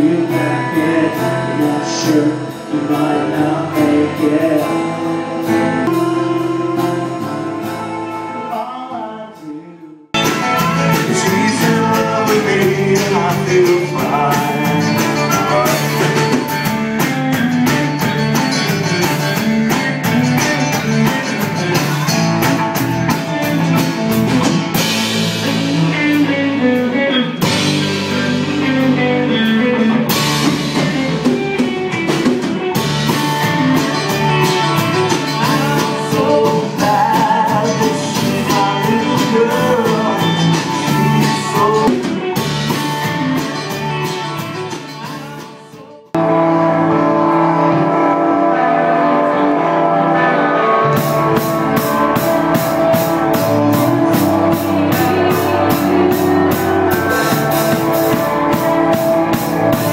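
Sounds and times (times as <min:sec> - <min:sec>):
drum kit: 0:00.0 - 0:59.9
electric guitar: 0:00.0 - 0:59.9.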